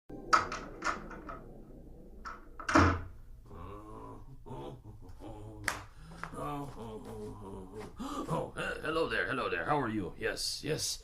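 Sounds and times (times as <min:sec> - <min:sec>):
door clicks and knocks: 0:00.3 - 0:01.5, 0:02.2 - 0:03.1
low voice: 0:03.4 - 0:08.8.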